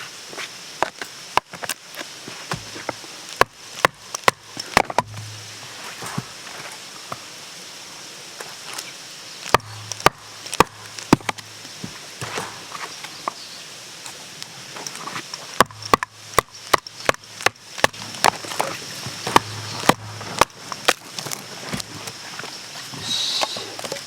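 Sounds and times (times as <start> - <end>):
sharp irregular knocks: 3.4 - 5.5, 9.5 - 12.6, 15.6 - 21.9.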